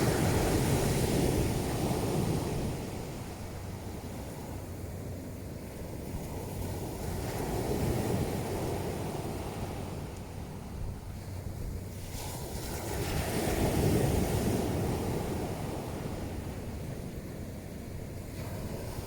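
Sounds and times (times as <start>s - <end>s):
waves breaking on pebble beach: 0.0s - 3.4s
wind rumble on microphone: 0.0s - 19.0s.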